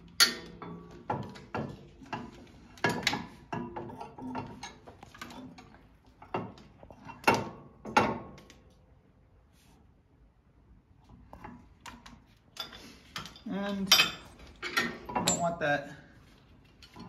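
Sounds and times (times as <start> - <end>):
metal clanks and knocks: 0.0 - 8.5, 11.3 - 15.6.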